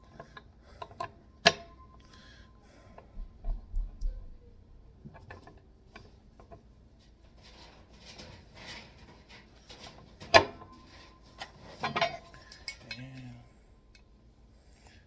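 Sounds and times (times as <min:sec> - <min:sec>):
light clicks of parts: 0:11.4 - 0:14.1.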